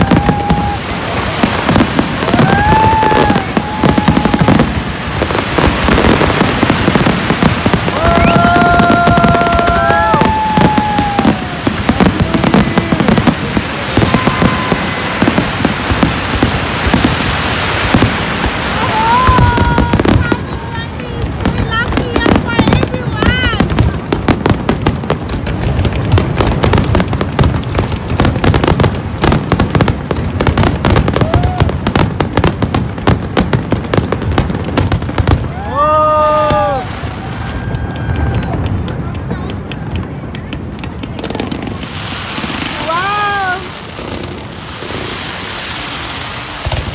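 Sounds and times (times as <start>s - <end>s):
fireworks crackling and popping: 0.0s - 46.9s
long horn-like tones: 11.4s - 16.3s.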